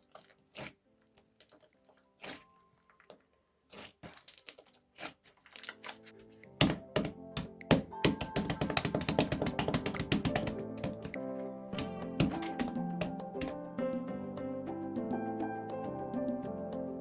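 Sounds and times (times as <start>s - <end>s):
background music: 0.0s - 17.0s
slime squeezed and popped: 3.7s - 5.9s.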